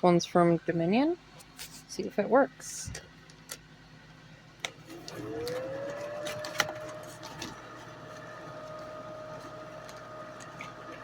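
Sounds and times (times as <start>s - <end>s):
hair dryer fan whine: 4.6s - 11.0s.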